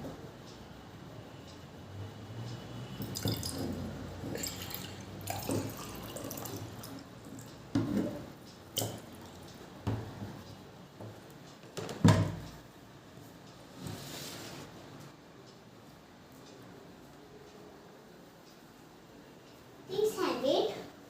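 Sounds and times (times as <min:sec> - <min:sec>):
water poured into a glass: 0:03.0 - 0:07.0
glass and jug clinking: 0:03.2 - 0:06.6.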